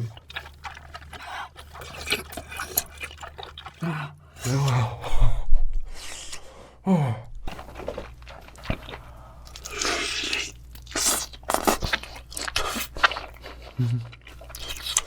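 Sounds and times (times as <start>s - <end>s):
crunchy chewing: 0.0s - 5.0s, 7.4s - 15.0s
person vocal sound: 3.8s - 5.4s, 6.8s - 7.3s, 13.8s - 14.2s.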